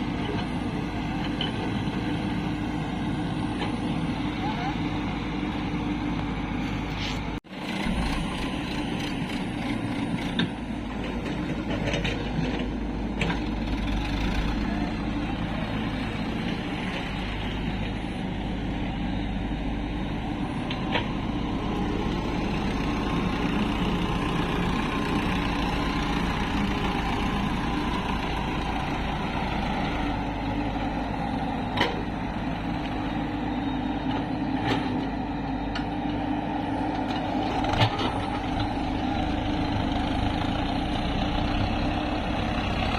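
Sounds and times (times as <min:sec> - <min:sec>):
heavy diesel engines running: 0:00.0 - 0:42.9.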